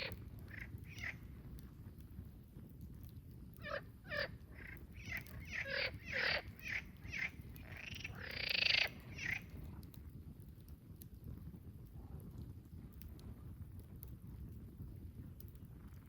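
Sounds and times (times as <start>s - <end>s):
bird calling: 5.0s - 9.4s.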